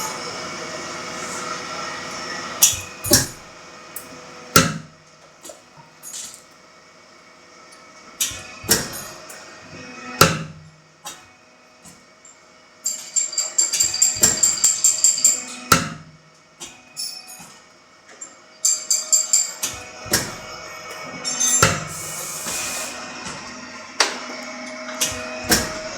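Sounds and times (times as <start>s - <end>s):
punch press humming: 0.0s - 5.8s, 8.2s - 12.0s, 13.6s - 17.6s, 19.6s - 25.9s.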